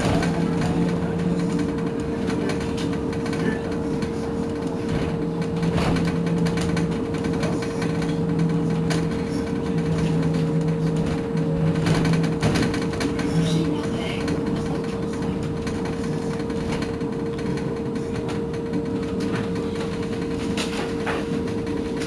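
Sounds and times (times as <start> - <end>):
electric bus whine: 0.0 - 22.0
low electric hum: 0.0 - 22.0.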